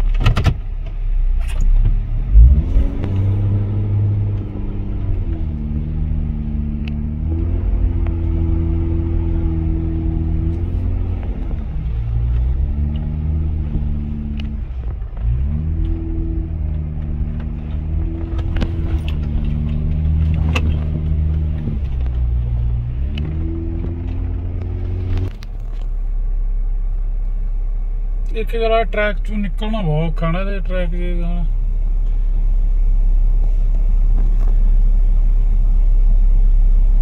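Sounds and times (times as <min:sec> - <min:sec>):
engine running under load: 0:01.2 - 0:28.3.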